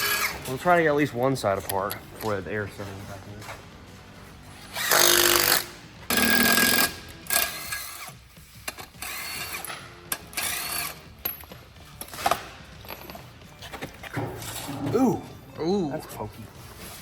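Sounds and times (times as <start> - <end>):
power tool bursts: 4.7 - 8.1.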